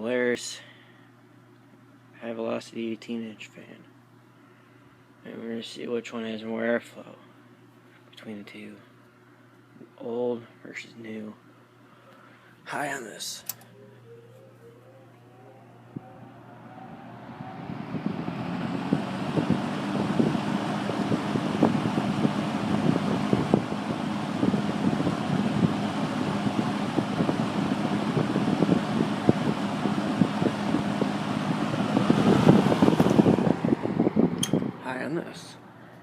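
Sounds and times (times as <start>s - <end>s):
electric fan humming: 0.0s - 36.0s
air buffeting microphone: 13.7s - 35.8s.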